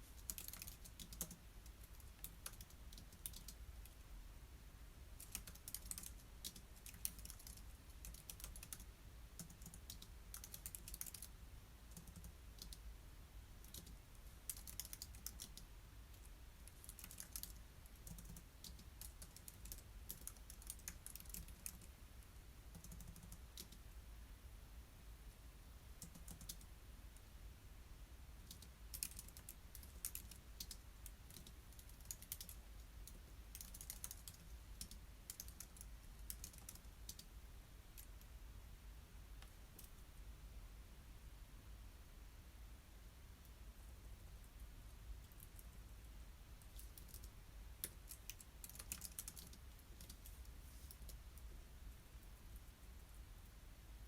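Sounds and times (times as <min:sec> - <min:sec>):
typing on computer keyboard: 0:00.0 - 0:04.0, 0:05.2 - 0:12.8, 0:13.6 - 0:21.9, 0:22.7 - 0:23.8, 0:26.0 - 0:26.7, 0:28.4 - 0:37.3, 0:46.6 - 0:51.2.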